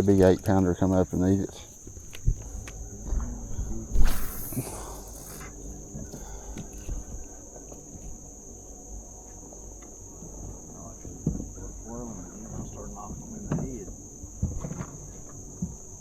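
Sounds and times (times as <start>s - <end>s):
insects droning: 0.0s - 16.0s
loud hissing rush: 1.4s - 7.5s.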